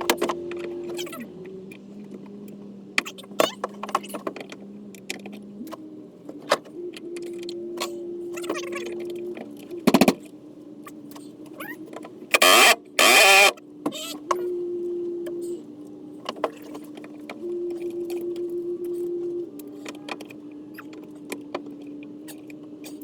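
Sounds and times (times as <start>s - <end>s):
cordless drill motor hum: 12.3s - 13.6s.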